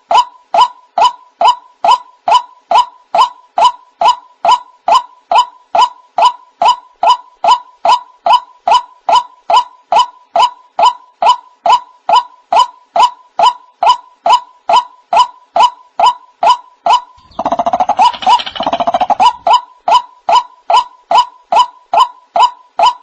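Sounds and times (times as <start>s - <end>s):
bird call repeated: 17.2s - 19.6s.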